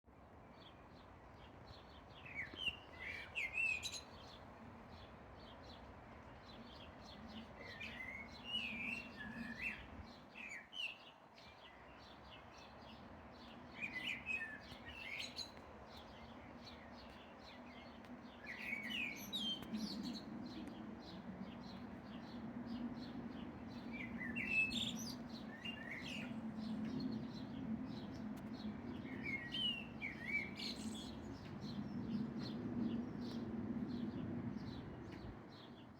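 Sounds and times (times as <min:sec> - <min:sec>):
songbird twittering chirps: 0:10.4 - 0:35.9.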